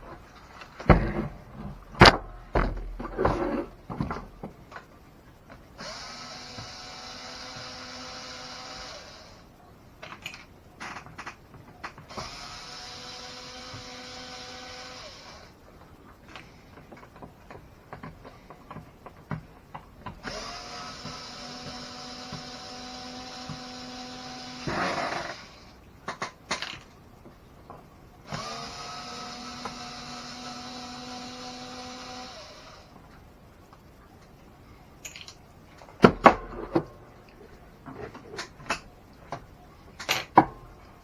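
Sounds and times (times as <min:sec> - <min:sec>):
power drill whining: 0:05.8 - 0:09.5, 0:12.1 - 0:15.6, 0:20.2 - 0:25.8, 0:28.3 - 0:33.0.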